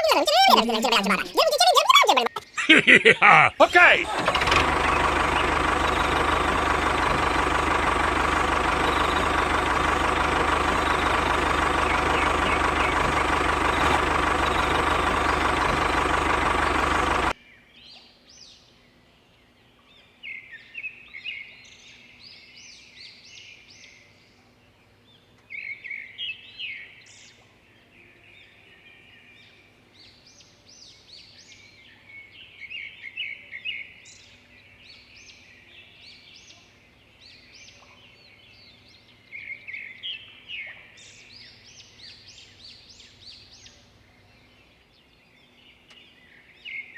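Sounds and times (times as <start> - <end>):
birds chirping: 0.0 - 17.4
machine humming: 4.0 - 17.3.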